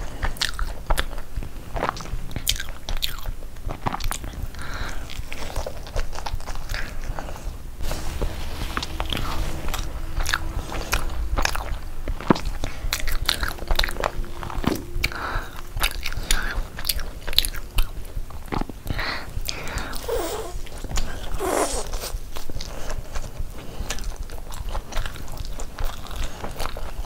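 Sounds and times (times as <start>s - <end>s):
chewing with wet mouth clicks: 0.0s - 7.6s, 15.0s - 20.0s, 20.7s - 27.0s.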